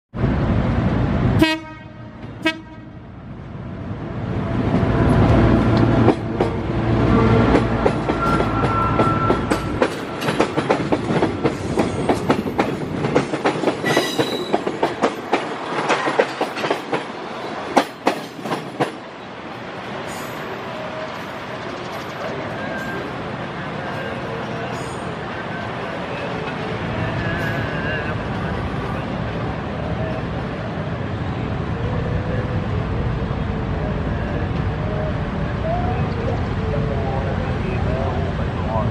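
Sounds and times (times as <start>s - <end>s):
train rumble: 0.2s - 38.9s
train horn blasts: 1.4s - 3.0s
wheels clacking over rail joints: 7.3s - 19.0s.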